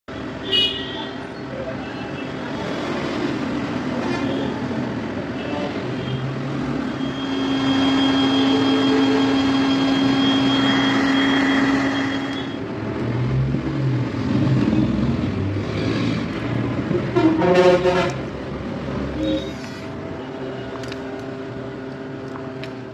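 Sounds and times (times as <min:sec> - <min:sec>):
road traffic noise: 0:00.0 - 0:22.9
long steady horn note: 0:17.1 - 0:18.2.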